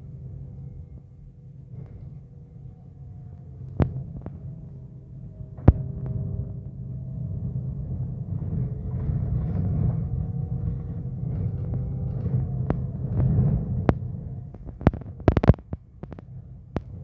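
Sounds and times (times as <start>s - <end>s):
bus engine rumbling: 0.0s - 17.0s
gearbox whine: 0.0s - 17.0s
sharp clicks: 14.5s - 16.9s.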